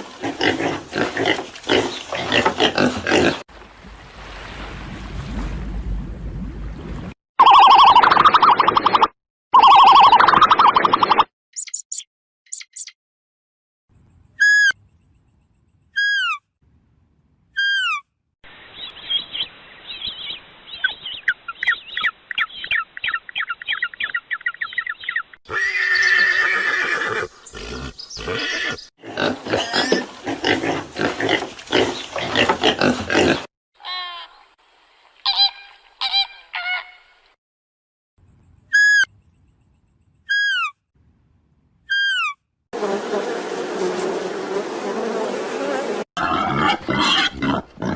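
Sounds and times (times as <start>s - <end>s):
pitched animal calls: 46.2s - 47.9s.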